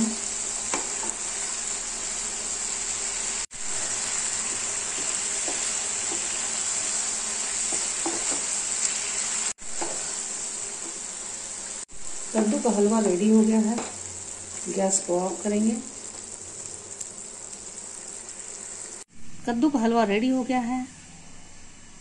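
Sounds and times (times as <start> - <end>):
food sizzling in a frying pan: 0.0 - 19.1
wooden spatula scraping a pan: 3.9 - 11.0.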